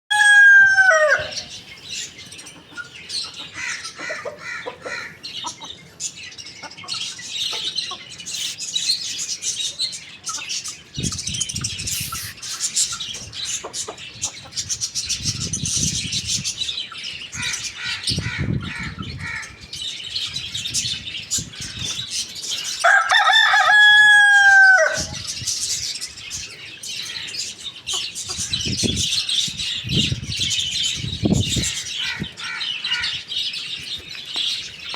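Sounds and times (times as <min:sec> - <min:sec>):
rooster crowing: 0:00.1 - 0:01.5, 0:22.8 - 0:25.2
small birds chirping: 0:01.2 - 0:23.0, 0:25.0 - 0:34.9
hens clucking: 0:02.4 - 0:05.8.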